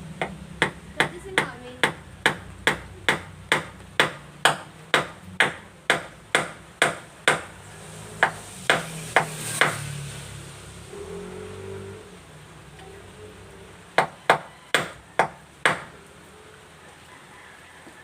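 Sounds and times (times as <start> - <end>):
hammer driving nails into wood: 1.8 - 7.5, 8.2 - 9.8.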